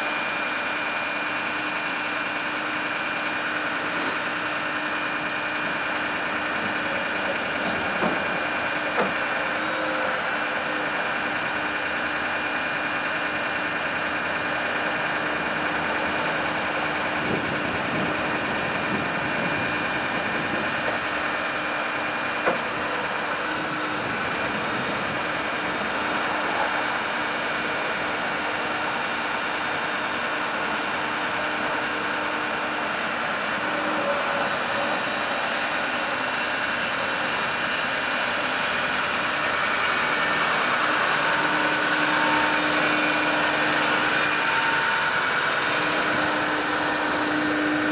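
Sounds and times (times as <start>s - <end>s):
truck engine running: 10.4s - 31.8s, 39.4s - 47.3s.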